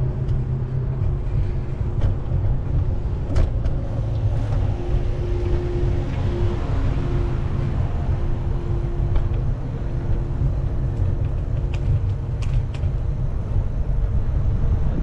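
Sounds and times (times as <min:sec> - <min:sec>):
traffic hum: 0:00.0 - 0:15.0
wind rumble on microphone: 0:00.0 - 0:15.0.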